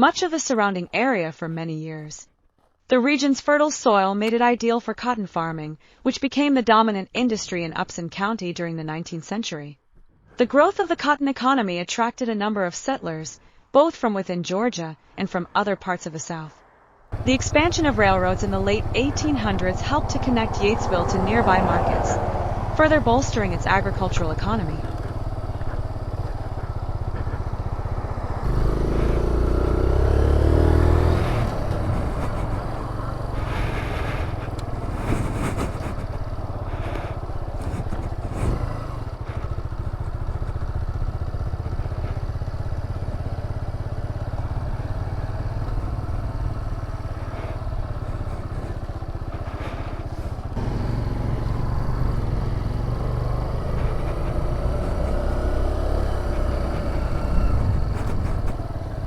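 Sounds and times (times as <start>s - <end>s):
motorcycle engine running: 17.1s - 59.0s.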